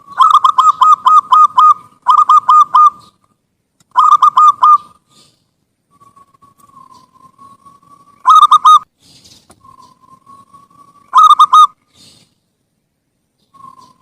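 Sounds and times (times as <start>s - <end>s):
dove cooing: 0.0s - 3.2s, 4.0s - 5.0s, 6.0s - 8.8s, 9.6s - 12.2s.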